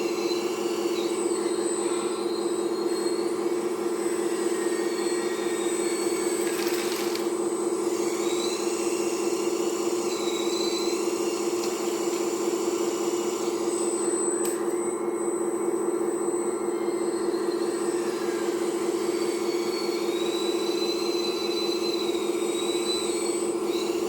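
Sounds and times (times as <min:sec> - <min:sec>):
hydraulic pump whining: 0:00.0 - 0:24.0.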